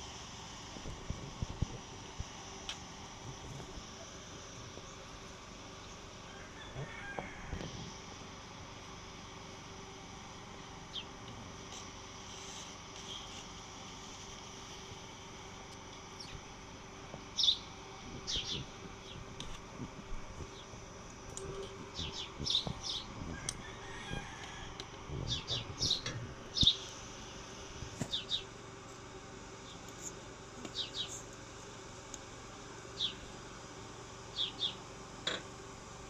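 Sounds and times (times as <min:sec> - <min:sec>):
steady low hum: 0:00.0 - 0:36.0
small birds chirping: 0:16.1 - 0:16.5, 0:17.2 - 0:19.4, 0:21.9 - 0:23.6, 0:25.2 - 0:27.0, 0:28.0 - 0:28.5, 0:29.6 - 0:31.3, 0:33.0 - 0:33.3, 0:34.3 - 0:34.8.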